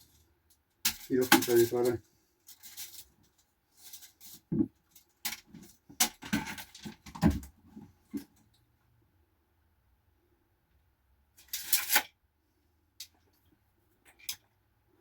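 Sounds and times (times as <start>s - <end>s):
objects knocking and rattling: 0.9s - 8.4s.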